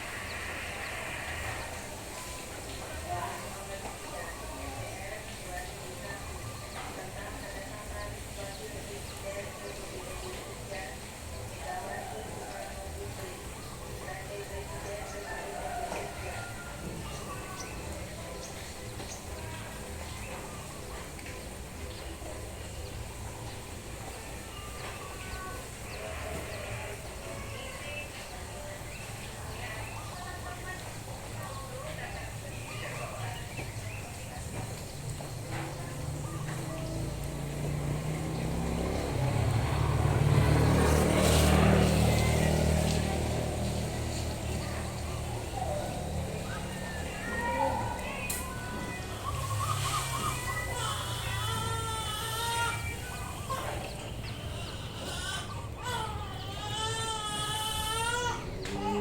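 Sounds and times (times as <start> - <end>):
vehicle engine passing by: 0.0 - 3.6, 34.2 - 59.0
rain falling: 0.0 - 59.0.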